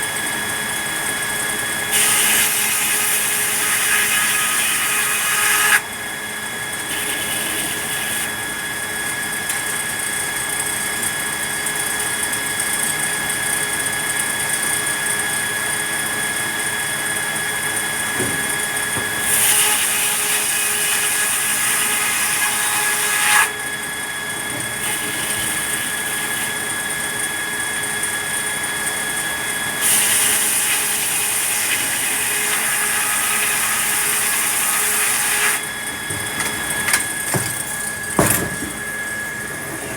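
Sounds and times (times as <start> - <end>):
sawmill saw whining: 0.0 - 39.9
saw cutting wood: 1.8 - 5.9, 6.8 - 8.6, 17.3 - 23.7, 24.4 - 27.2, 29.8 - 39.9.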